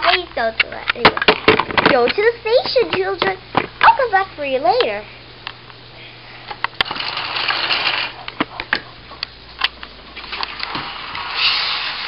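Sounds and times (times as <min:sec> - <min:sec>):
rough whirring noise: 0:01.5 - 0:12.0
toy trains clicking and clattering: 0:06.8 - 0:08.4.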